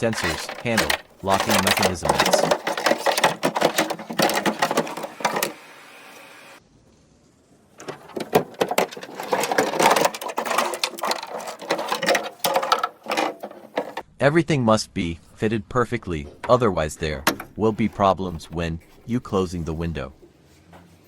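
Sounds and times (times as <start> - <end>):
tools clicking on door parts: 0.0 - 5.6, 17.2 - 17.6.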